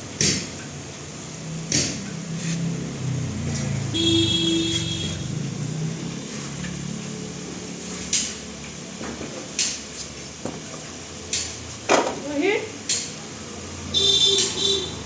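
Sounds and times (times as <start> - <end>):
sharp knocks: 1.7 - 2.0.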